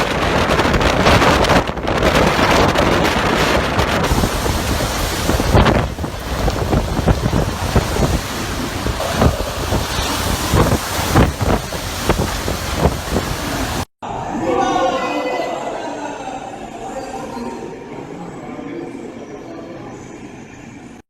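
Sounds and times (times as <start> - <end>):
strong wind gusting: 0.0 - 13.9
wind buffeting microphone: 0.0 - 13.9.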